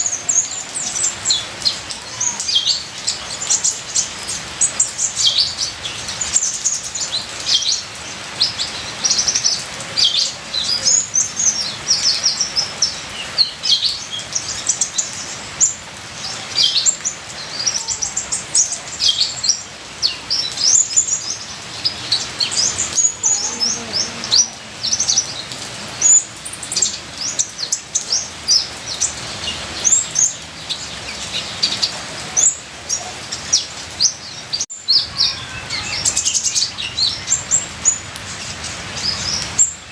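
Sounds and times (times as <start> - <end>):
bird chirping and twittering: 0.0 - 39.9
trickling rain water: 0.0 - 39.9.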